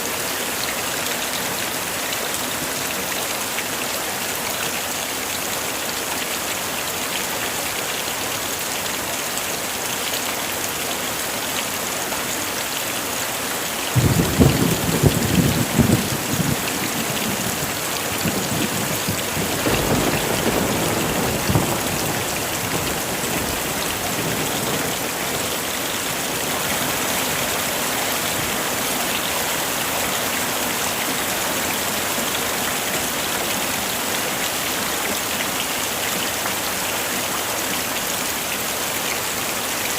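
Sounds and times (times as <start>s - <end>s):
heavy rain: 0.0s - 39.9s
thunder cracking and rumbling: 14.0s - 25.2s.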